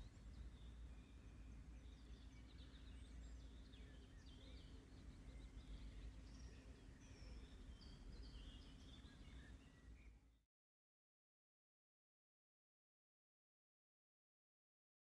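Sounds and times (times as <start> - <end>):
small birds singing: 0.0 - 10.2.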